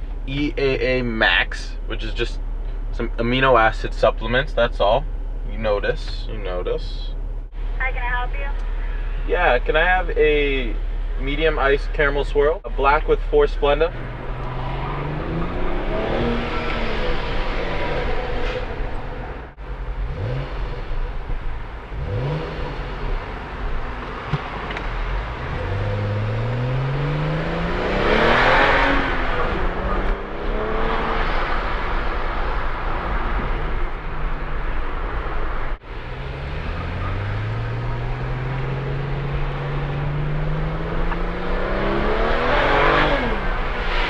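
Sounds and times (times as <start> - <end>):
car engine accelerating hard: 9.1 - 44.0.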